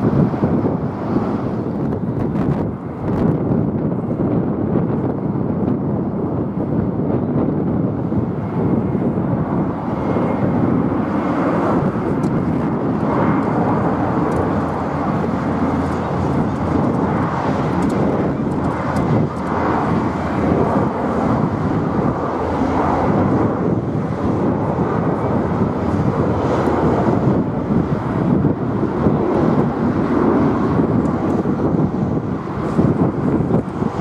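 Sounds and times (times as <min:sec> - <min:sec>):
jet engines rushing: 0:00.0 - 0:34.0.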